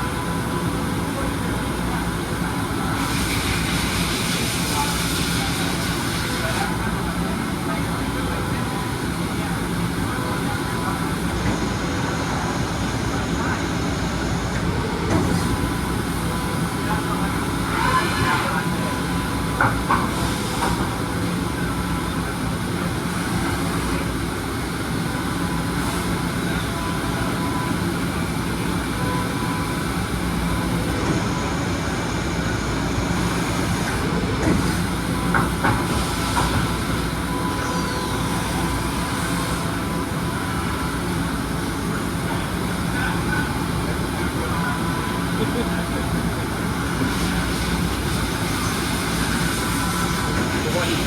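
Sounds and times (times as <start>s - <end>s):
washing machine rushing and humming: 0.0s - 51.0s.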